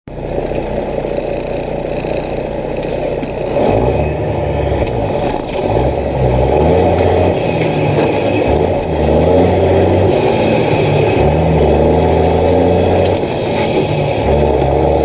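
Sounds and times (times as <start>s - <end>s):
diesel truck engine braking: 0.1s - 15.0s.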